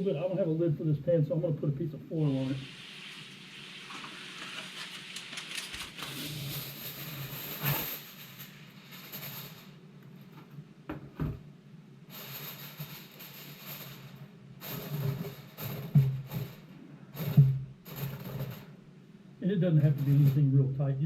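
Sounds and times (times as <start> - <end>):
aluminium foil crinkling: 3.8 - 8.5.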